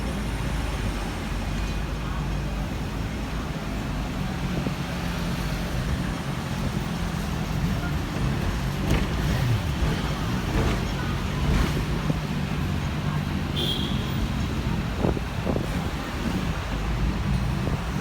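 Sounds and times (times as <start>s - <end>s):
tram running noise: 0.0s - 18.0s.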